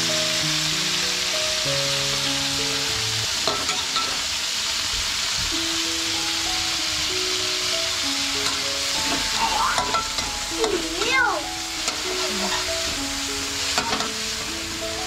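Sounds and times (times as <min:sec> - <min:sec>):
background melody: 0:00.0 - 0:03.9, 0:05.5 - 0:15.0
meat sizzling in oil: 0:00.0 - 0:15.0
metal spatula scraping wok: 0:08.4 - 0:10.8, 0:11.8 - 0:13.0.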